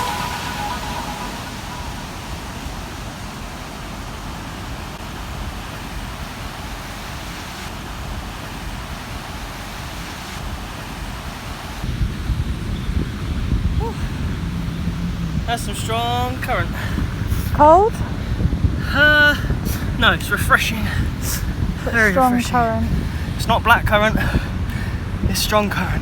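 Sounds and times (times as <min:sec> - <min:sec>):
ocean surf: 0:00.0 - 0:23.7
wind on microphone: 0:07.7 - 0:26.0.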